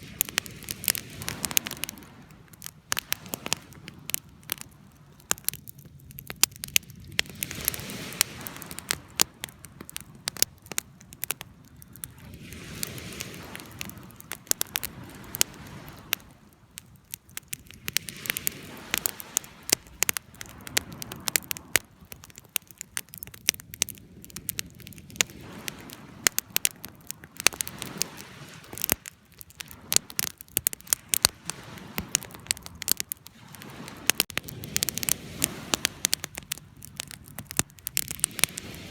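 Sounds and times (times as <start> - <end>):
campfire crackles and pops: 0.0 - 38.9
fire rushing hiss: 24.5 - 38.9.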